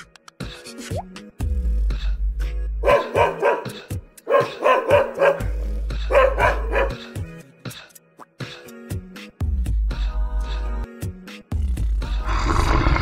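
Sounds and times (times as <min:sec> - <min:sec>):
background music with deep bass: 0:00.0 - 0:12.5
dog barking: 0:02.8 - 0:07.2.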